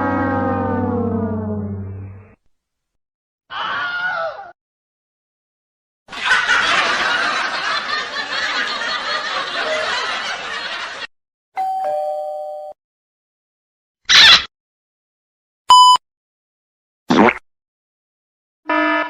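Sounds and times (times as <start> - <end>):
two-note doorbell chime: 11.6 - 12.8.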